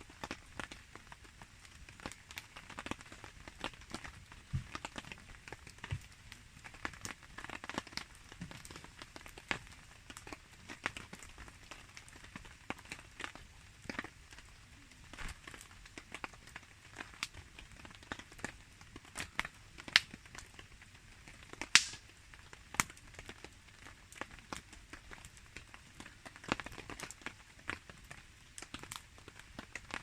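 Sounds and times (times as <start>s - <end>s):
campfire crackling and popping: 0.0s - 30.0s
rain pattering: 0.0s - 30.0s.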